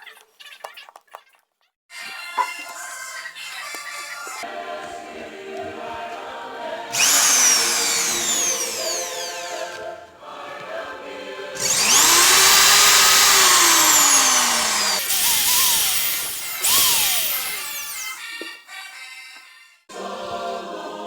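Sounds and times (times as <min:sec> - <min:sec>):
electric drill motor whine: 0:06.9 - 0:09.7, 0:11.6 - 0:18.2.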